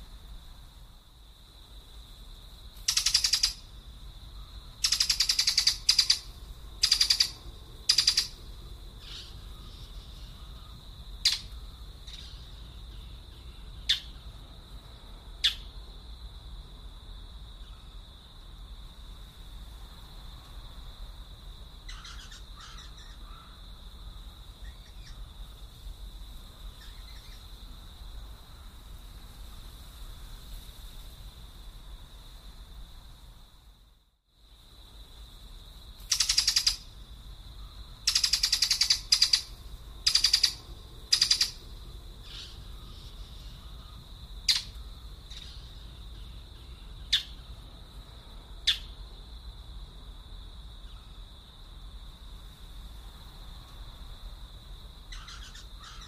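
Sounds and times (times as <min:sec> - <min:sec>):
sharp bird chirps: 0:02.8 - 0:03.6, 0:04.8 - 0:08.4, 0:11.2 - 0:14.2, 0:15.4 - 0:15.7, 0:26.8 - 0:27.5, 0:36.1 - 0:36.8, 0:38.1 - 0:39.5, 0:40.1 - 0:41.6, 0:44.5 - 0:45.7, 0:48.7 - 0:48.9, 0:55.1 - 0:56.0
birds harsh calls: 0:21.9 - 0:23.6, 0:55.1 - 0:56.0.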